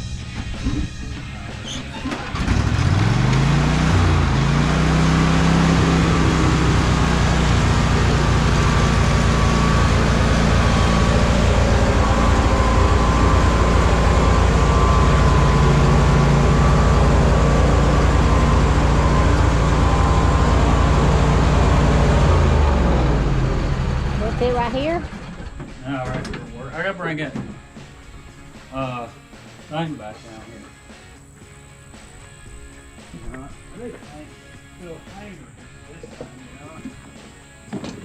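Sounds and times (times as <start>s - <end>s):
riding lawn mower engine: 0.0s - 38.0s.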